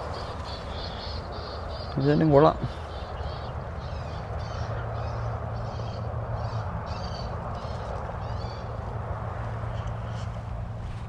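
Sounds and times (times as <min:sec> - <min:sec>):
birds chirping: 0:00.0 - 0:10.5
steady low hum: 0:00.0 - 0:11.0.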